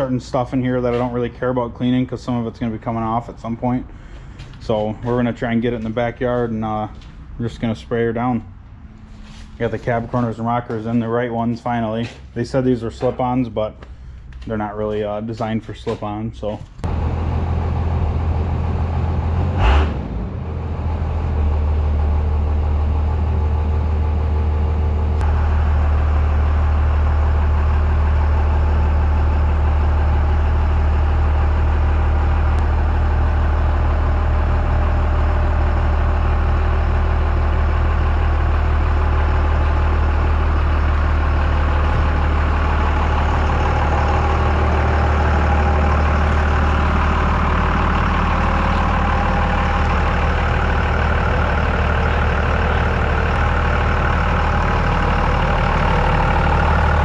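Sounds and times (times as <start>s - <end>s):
pickup truck engine droning: 16.7s - 57.0s.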